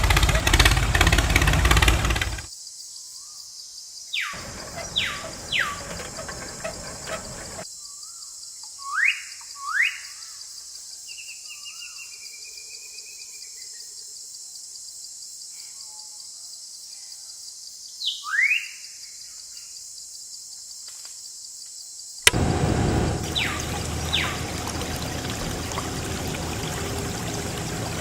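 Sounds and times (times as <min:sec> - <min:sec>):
bird rising whistles: 0:04.3 - 0:06.1
bird warbling trill: 0:04.3 - 0:07.6, 0:23.1 - 0:28.0.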